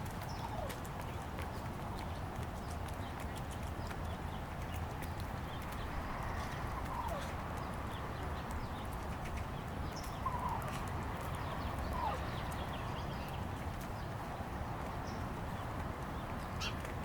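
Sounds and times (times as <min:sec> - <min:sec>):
slurred bird calls: 0:10.0 - 0:13.4.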